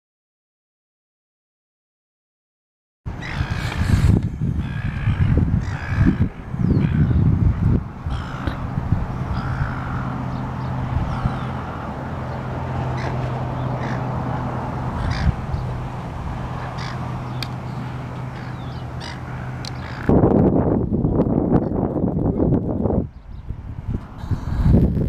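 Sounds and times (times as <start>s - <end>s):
birds calling crow-like: 3.1s - 7.4s, 8.0s - 20.2s.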